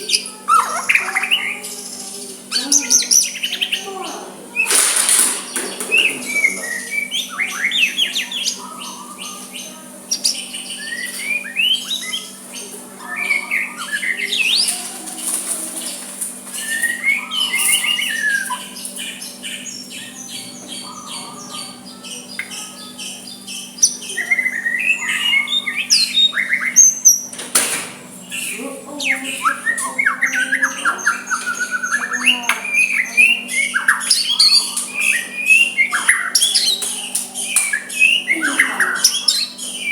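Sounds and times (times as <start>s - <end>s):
steady low hum: 0.0s - 39.9s
bird singing whistled phrases: 5.9s - 14.8s, 16.6s - 27.3s, 28.3s - 39.9s.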